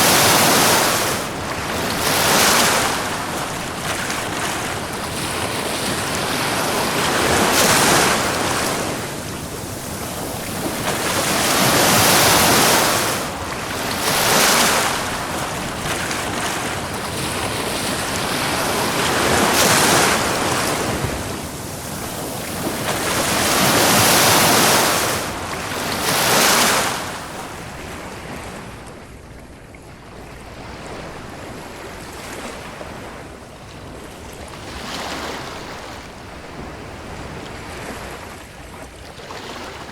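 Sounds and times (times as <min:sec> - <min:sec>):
ocean surf breaking: 0:00.0 - 0:28.7.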